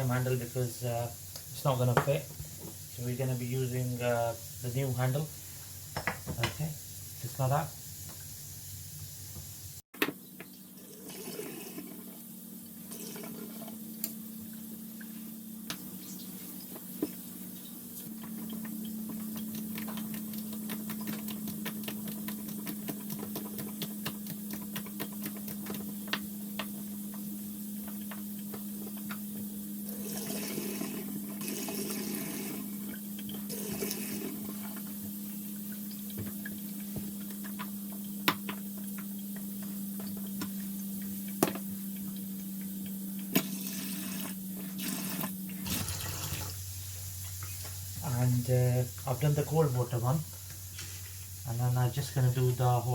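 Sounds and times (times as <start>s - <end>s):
water running from tap: 16.6s - 29.2s, 29.8s - 38.2s, 38.8s - 52.9s.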